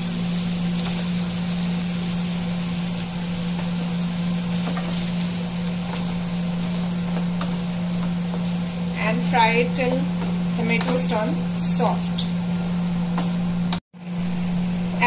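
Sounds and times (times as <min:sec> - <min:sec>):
constant low hum: 0:00.0 - 0:15.0
vegetables frying hiss: 0:00.0 - 0:15.0
wooden spatula scraping: 0:04.4 - 0:09.5.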